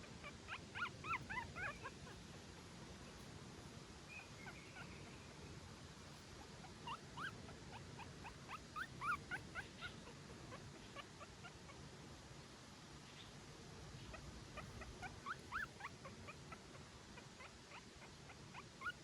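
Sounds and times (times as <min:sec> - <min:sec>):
faint steady hiss: 0:00.0 - 0:19.0
puppy whimpering: 0:00.2 - 0:02.2, 0:06.6 - 0:10.3, 0:14.1 - 0:19.0.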